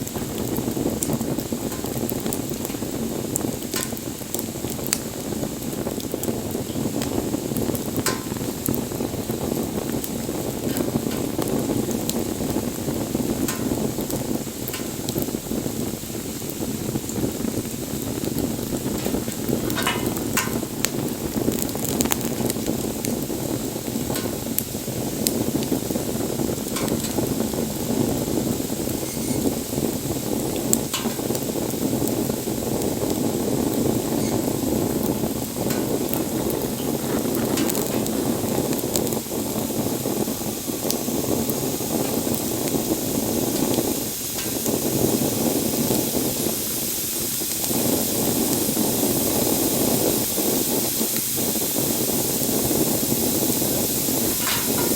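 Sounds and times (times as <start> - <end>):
burning wood crackling and popping: 0.0 - 54.9
campfire flames rushing: 0.0 - 54.9.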